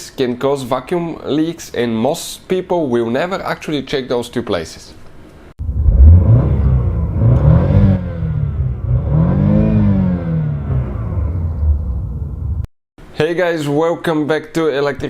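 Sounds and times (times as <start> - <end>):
car engine revving: 5.6 - 12.7.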